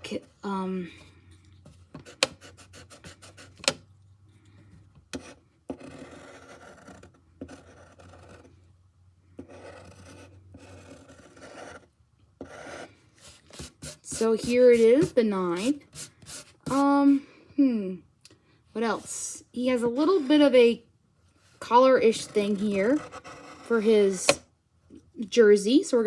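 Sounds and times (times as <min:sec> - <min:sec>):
drawing tool scratching on paper: 0:02.0 - 0:03.8, 0:05.2 - 0:08.5, 0:09.4 - 0:16.9, 0:21.7 - 0:24.4.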